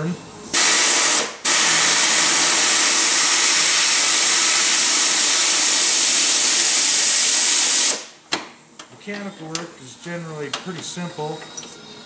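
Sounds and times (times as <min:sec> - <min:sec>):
pneumatic air tool hissing: 0:00.5 - 0:08.1.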